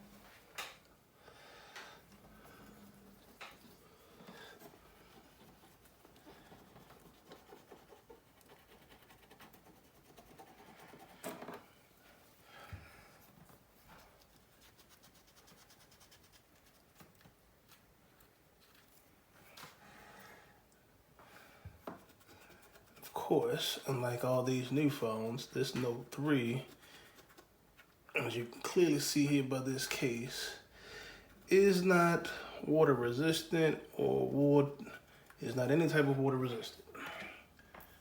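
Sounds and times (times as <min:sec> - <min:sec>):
cotton swab scratching and rubbing: 0:04.6 - 0:11.2, 0:13.9 - 0:17.8, 0:22.0 - 0:23.1, 0:26.4 - 0:28.0.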